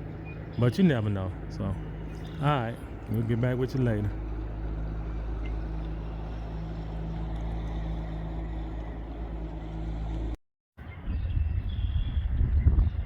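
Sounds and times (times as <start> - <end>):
engine humming: 0.0 - 10.4
wind buffeting microphone: 4.2 - 13.0.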